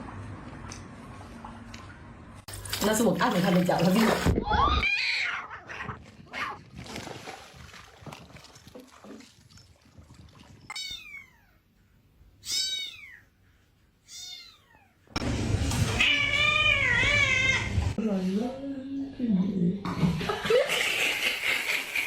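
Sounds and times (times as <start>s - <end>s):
cat meowing: 12.4s - 13.3s, 14.1s - 15.0s, 15.9s - 17.8s.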